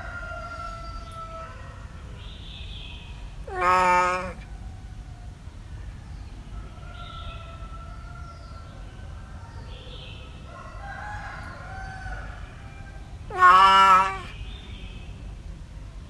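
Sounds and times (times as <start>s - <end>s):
faint cat meows: 3.4s - 4.5s, 13.3s - 14.4s
loud drawn-out animal call: 3.4s - 4.5s, 13.2s - 14.4s.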